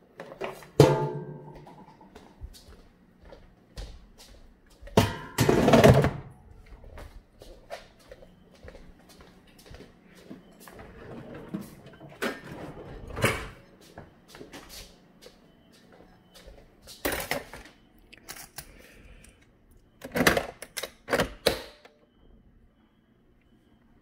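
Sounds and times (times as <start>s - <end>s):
objects knocking and clattering: 5.0s - 6.3s.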